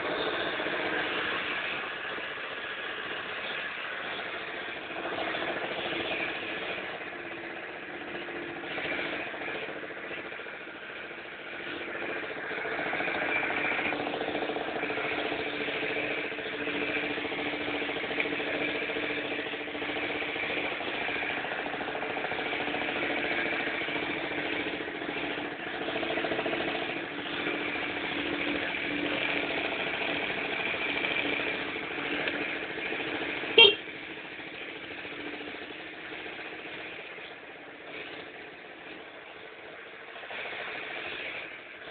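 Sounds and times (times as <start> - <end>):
scooter engine running: 0.0 - 41.9.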